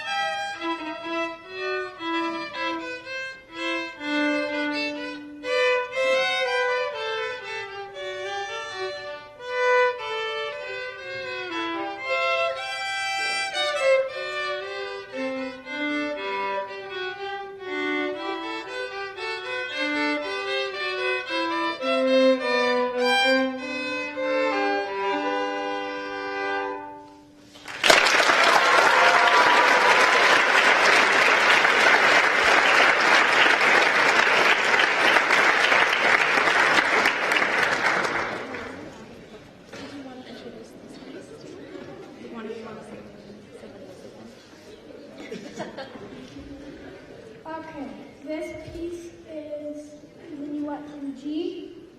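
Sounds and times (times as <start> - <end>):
violin and viola duet: 0.0 - 27.4
audience applause: 27.5 - 39.4.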